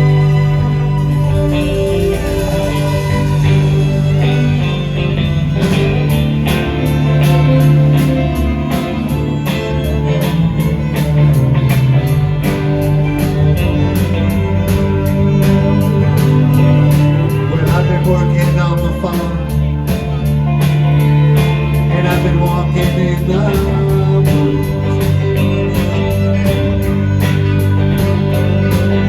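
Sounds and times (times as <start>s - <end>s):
electric guitar: 0.0s - 29.0s
held bass note: 0.0s - 29.0s.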